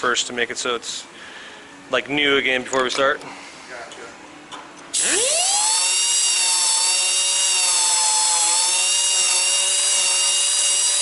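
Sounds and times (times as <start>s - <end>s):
grinder motor whining: 5.0s - 11.0s.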